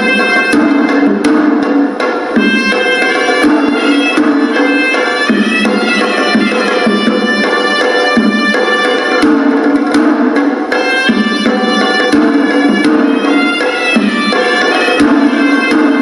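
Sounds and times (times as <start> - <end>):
double-reed pipe melody: 0.0 - 1.0, 2.4 - 9.2, 10.8 - 16.0
drums beating steady rhythm: 0.0 - 16.0.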